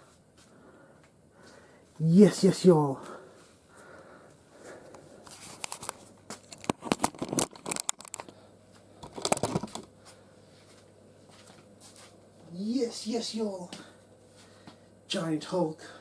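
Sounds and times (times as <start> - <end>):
packaging crinkling: 5.3 - 8.3.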